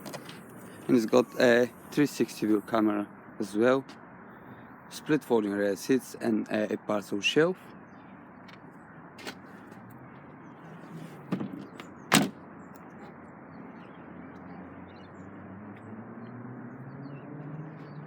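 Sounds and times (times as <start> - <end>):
car tailgate thudding shut: 11.1 - 12.4.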